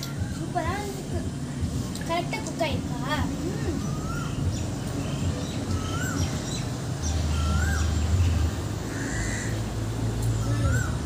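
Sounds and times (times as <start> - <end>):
bird calling: 3.2 - 11.0.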